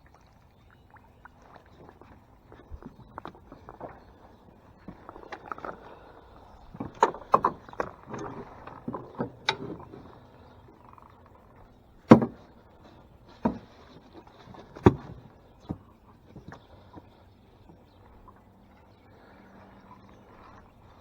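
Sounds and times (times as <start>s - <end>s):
knocks against a boat: 6.7s - 10.2s, 12.0s - 12.6s, 13.4s - 16.6s.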